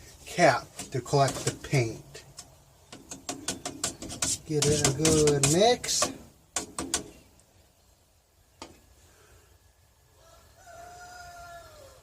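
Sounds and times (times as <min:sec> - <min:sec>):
rooster crowing: 0:10.1 - 0:12.0.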